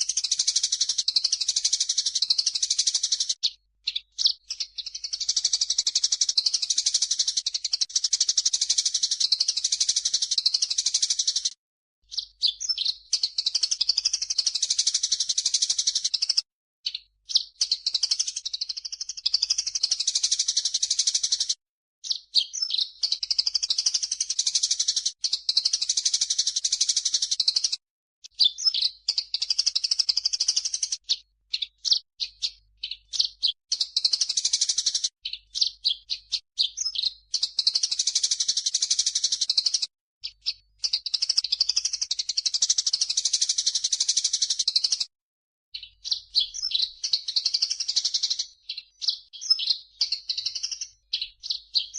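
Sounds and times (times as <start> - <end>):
sparrows chirping: 0.0 - 45.1, 45.8 - 51.9
bulbul singing: 45.8 - 51.9.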